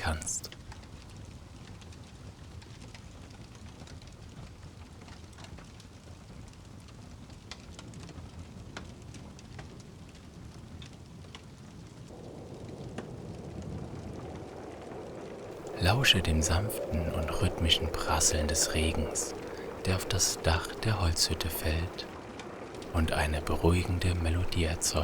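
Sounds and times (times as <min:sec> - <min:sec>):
rain falling: 0:00.0 - 0:00.5, 0:12.2 - 0:25.0.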